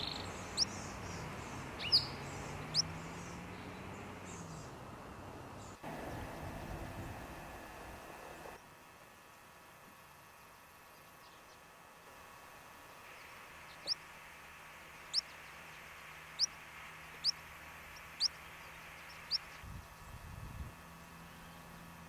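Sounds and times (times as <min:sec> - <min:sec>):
songbird chirping: 0:00.0 - 0:06.9, 0:15.0 - 0:20.1
faint steady hiss: 0:00.0 - 0:20.1.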